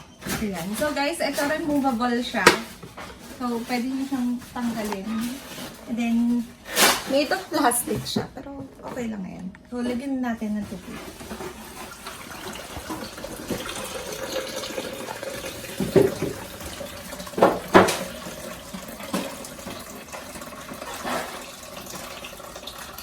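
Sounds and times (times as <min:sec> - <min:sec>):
water pouring into plastic tank: 0:11.2 - 0:23.0
plastic tank knocks: 0:15.7 - 0:18.3.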